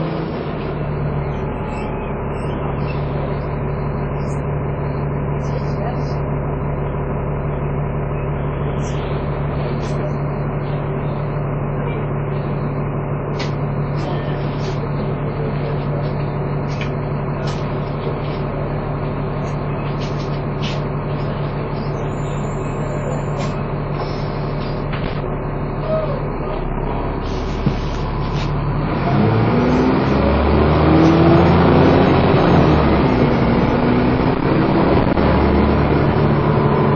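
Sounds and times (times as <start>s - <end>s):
bus engine hum with whine: 0.0s - 36.9s
bus body rattling: 11.8s - 28.7s.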